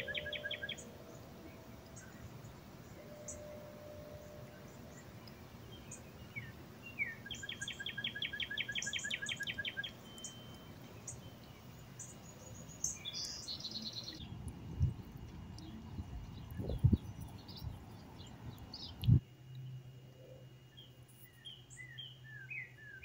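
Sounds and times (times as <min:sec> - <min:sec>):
fast bird trill: 0:00.0 - 0:00.9
small birds chirping: 0:00.0 - 0:23.0
low background rumble: 0:09.8 - 0:21.0.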